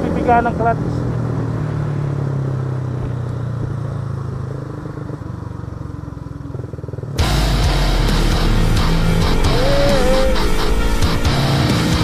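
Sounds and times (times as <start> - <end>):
motorcycle engine running: 0.0 - 12.0
road and wind noise: 0.0 - 12.0
loud music: 7.2 - 12.0.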